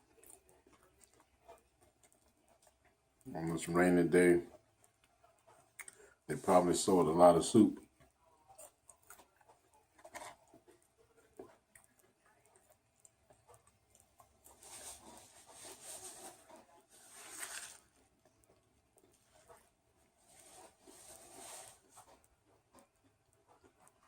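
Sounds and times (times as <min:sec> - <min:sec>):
rustling: 0:14.2 - 0:24.0.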